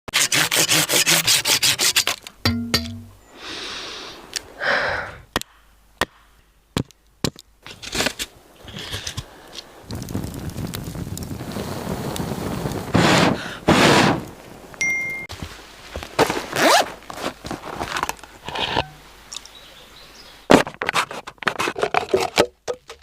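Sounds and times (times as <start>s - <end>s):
brief ringing tone: 14.8s - 15.3s
sharp clicks and scrapes: 20.6s - 23.0s.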